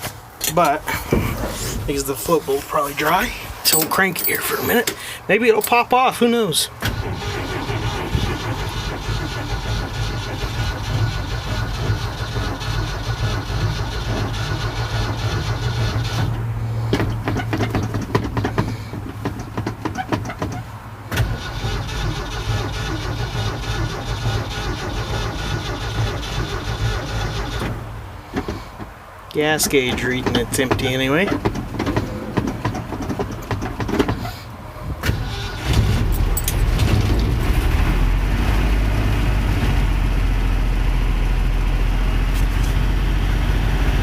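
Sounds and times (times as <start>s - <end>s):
engine cranking without starting: 6.8s - 28.8s, 29.7s - 38.9s.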